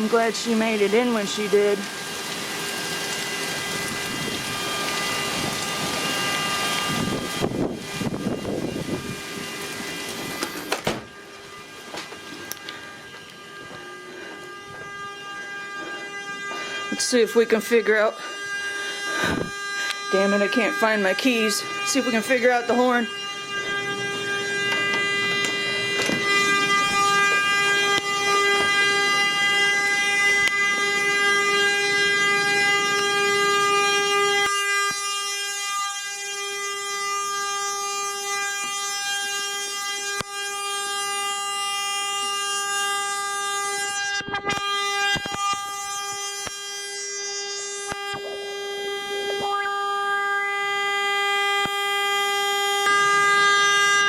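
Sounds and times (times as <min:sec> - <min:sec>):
car horn sounding continuously: 0:02.6 - 0:54.0.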